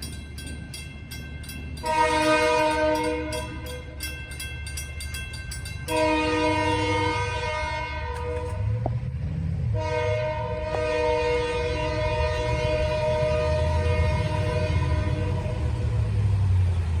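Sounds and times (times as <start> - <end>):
passing train rumble: 0.0 - 17.0
locomotive air horn blasts: 1.8 - 3.9, 5.9 - 8.8, 9.7 - 16.0.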